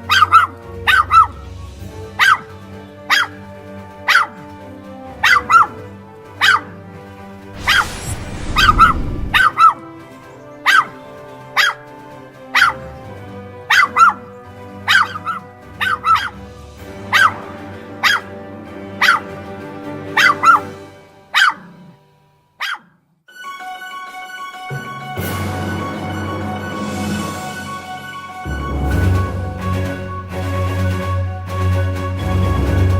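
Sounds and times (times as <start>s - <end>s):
background music: 0.0s - 22.3s, 23.3s - 32.9s
short rushing noise: 7.6s - 9.7s
dog barking: 18.0s - 18.3s, 19.0s - 19.3s, 21.3s - 22.0s, 22.6s - 23.0s.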